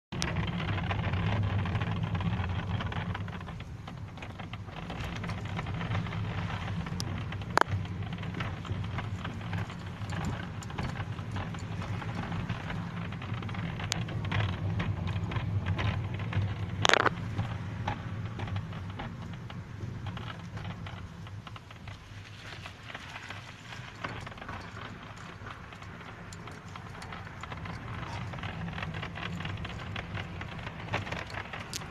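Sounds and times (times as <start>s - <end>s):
car driving low drone: 0.1s - 31.9s
dashboard creaking and crackling: 0.1s - 31.9s.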